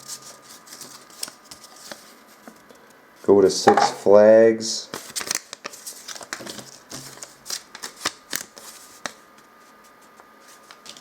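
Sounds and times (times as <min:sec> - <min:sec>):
plastic packaging crinkling: 0:05.0 - 0:09.2.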